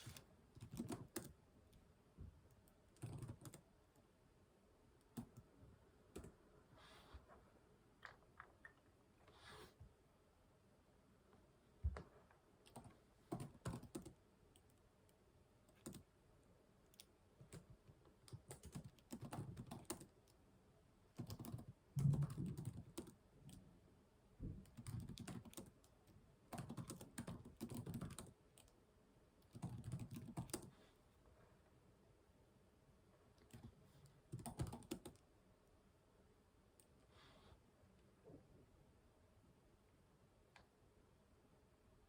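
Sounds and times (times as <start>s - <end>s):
typing on computer keyboard: 0.0s - 1.4s, 2.9s - 3.7s, 12.6s - 14.7s, 15.7s - 16.1s, 17.0s - 20.4s, 21.1s - 23.6s, 24.6s - 28.8s, 29.4s - 30.7s, 33.4s - 35.2s.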